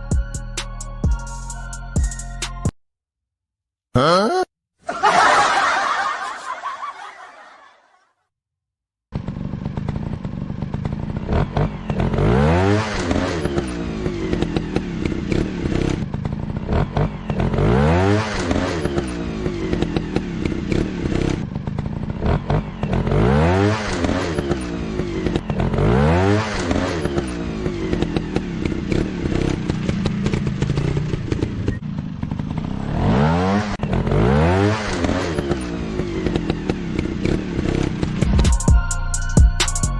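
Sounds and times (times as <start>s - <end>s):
dirt bike engines revving: 9.2s - 38.3s.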